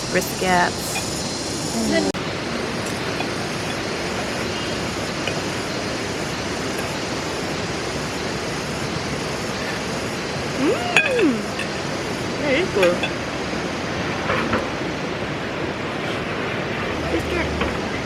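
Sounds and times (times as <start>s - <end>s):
steady rushing noise: 0.0s - 18.0s
person's voice: 1.7s - 2.2s, 10.6s - 11.6s.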